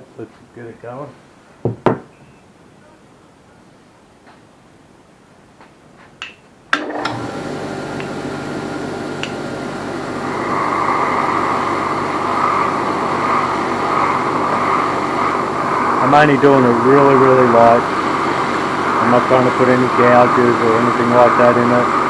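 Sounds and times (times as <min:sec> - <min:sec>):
wire wheel motor hum: 0:06.8 - 0:22.0.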